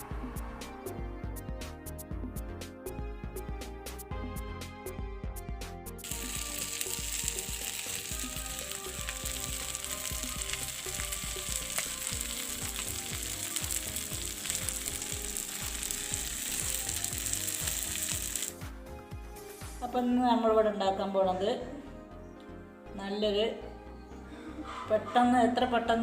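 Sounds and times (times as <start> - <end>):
background music: 0.0 - 26.0
chicken sizzling on a hot pan: 6.0 - 18.6.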